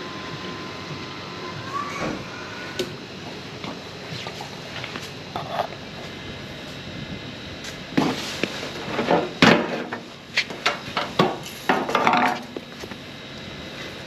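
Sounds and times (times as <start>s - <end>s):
knocks and clanks: 8.9s - 12.6s.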